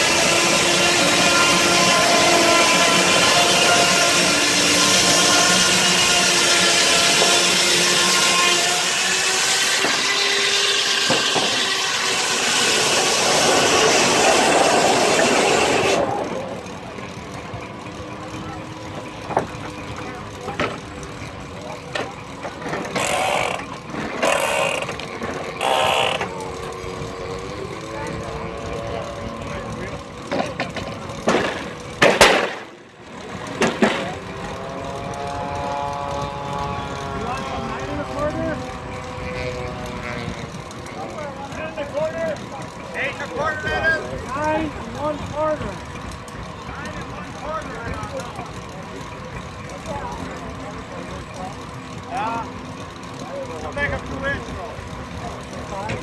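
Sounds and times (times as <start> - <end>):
saw cutting log: 0.0 - 17.1, 18.4 - 41.2
machine running noise: 0.0 - 56.0.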